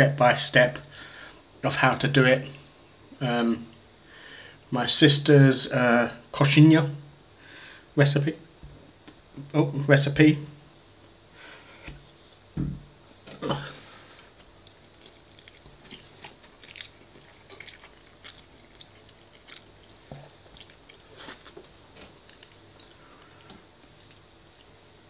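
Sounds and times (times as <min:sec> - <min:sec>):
wet chewing mouth smacks: 0:14.6 - 0:24.7.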